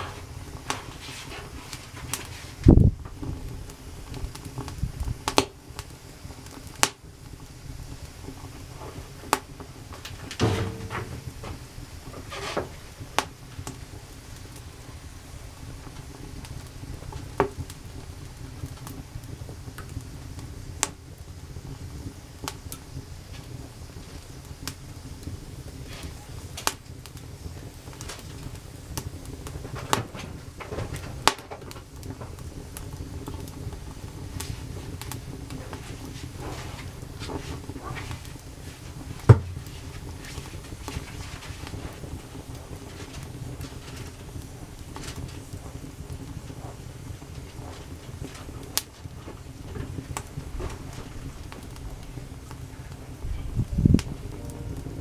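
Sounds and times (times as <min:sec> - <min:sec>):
campfire crackling: 0:31.2 - 0:53.2, 0:54.0 - 0:55.0.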